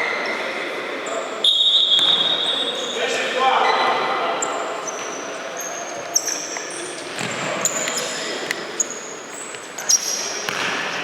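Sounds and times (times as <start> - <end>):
sneakers squeaking on court floor: 0.0 - 11.0
ball kicked with sharp knocks: 10.5 - 11.0.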